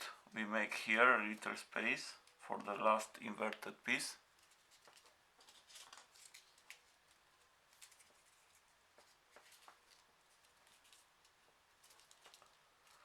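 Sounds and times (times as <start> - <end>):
paper rustling: 4.4 - 13.0
soft paper clicks: 4.4 - 13.0.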